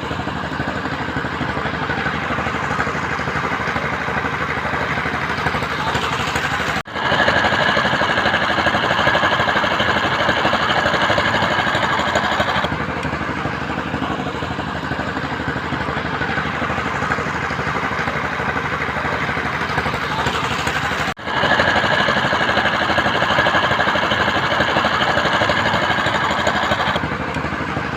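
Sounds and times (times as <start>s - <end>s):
engine running: 0.0s - 27.9s.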